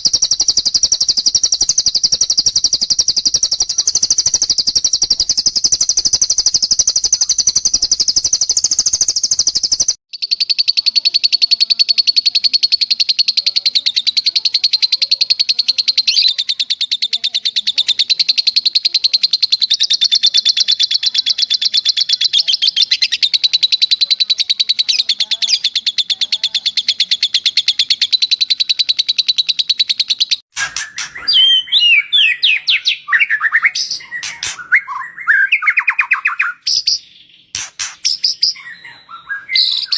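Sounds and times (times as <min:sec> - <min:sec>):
bird whistling phrases: 0:00.0 - 0:09.9, 0:13.7 - 0:29.6, 0:30.6 - 0:39.9
songbird trilling: 0:00.0 - 0:39.9.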